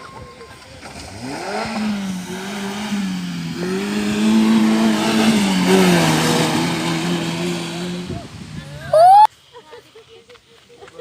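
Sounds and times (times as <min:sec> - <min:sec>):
vehicle engine revving: 0:00.8 - 0:08.9.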